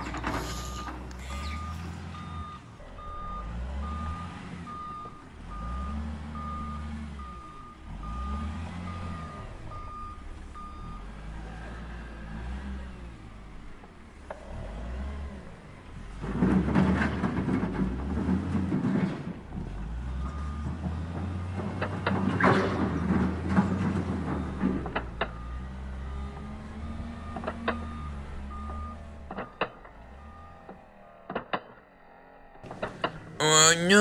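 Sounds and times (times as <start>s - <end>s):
toy excavator beeping: 0.0s - 3.4s.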